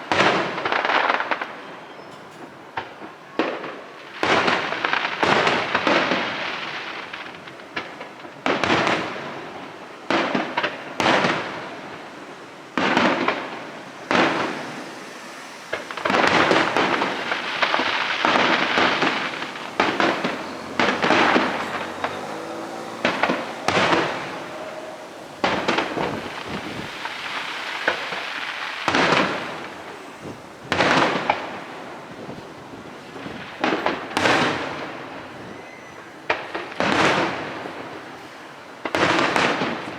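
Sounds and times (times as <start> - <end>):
firework crackle: 0.0 - 39.9
firework shells bursting: 12.7 - 32.2.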